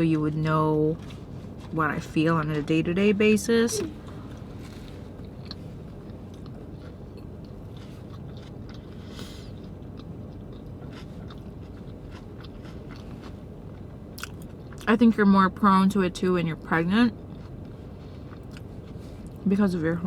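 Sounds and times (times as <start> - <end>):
steady low hum: 0.0 - 20.0
person chewing crunchy food: 0.9 - 1.8, 3.8 - 14.9, 17.2 - 19.4.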